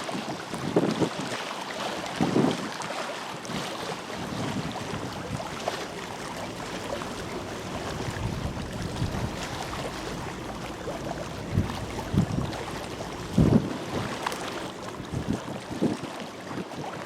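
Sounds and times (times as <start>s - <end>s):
wind on microphone: 0.0s - 17.0s
water washing: 1.6s - 17.0s
low rumbling gusts: 3.8s - 16.2s.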